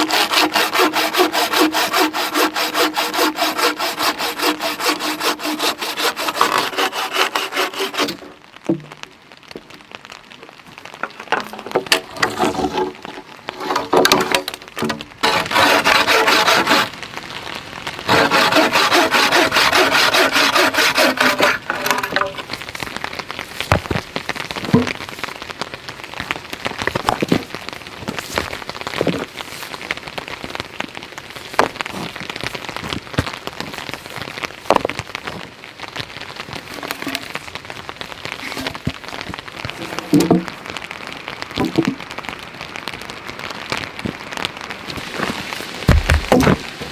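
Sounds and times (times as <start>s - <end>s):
hand saw cutting wood: 0.0s - 8.3s, 11.9s - 16.9s, 18.1s - 22.4s, 36.8s - 37.3s, 38.4s - 38.8s, 39.7s - 40.5s
steady rain: 0.0s - 46.9s.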